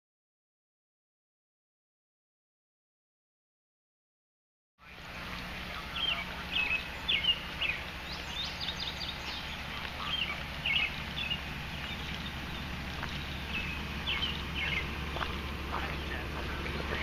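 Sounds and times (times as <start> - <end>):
songbirds chirping: 4.8 - 17.0
steady low hum: 4.8 - 17.0.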